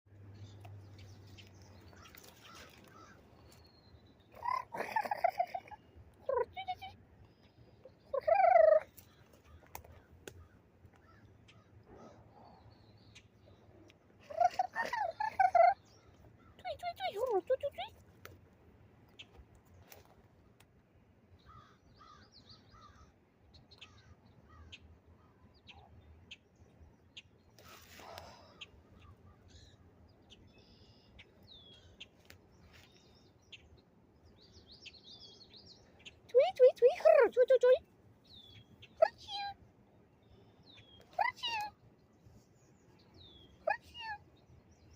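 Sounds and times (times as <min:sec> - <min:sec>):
small birds chirping: 0:00.1 - 0:18.4, 0:21.3 - 0:44.9
faint clicks: 0:08.9 - 0:11.7.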